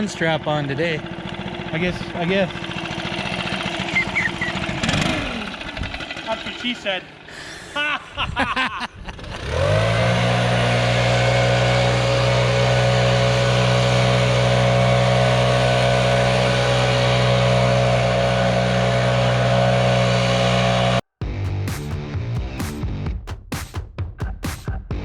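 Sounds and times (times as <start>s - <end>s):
leaf blower engine running: 0.0s - 7.3s, 9.2s - 21.0s.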